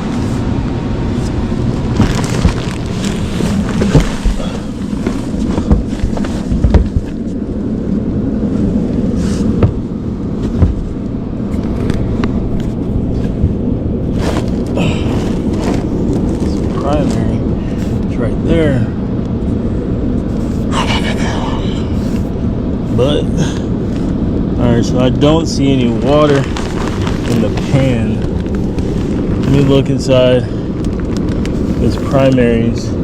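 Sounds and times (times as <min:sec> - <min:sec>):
low machine hum: 0:00.0 - 0:33.0
knocks and thumps of climbing: 0:01.8 - 0:07.5, 0:09.1 - 0:17.3.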